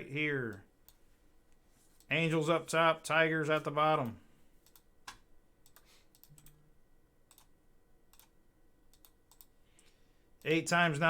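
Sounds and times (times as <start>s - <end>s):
computer mouse clicks and key taps: 4.0s - 6.6s, 7.3s - 10.5s.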